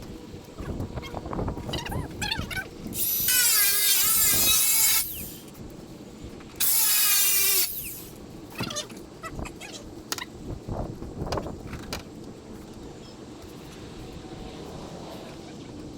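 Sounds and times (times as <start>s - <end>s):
power drill driving screws: 3.0s - 5.4s, 6.6s - 8.1s.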